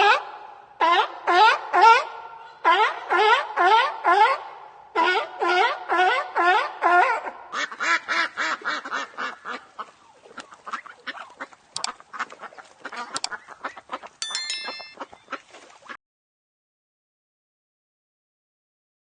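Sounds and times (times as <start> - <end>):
ducks quacking: 5.0 - 14.2.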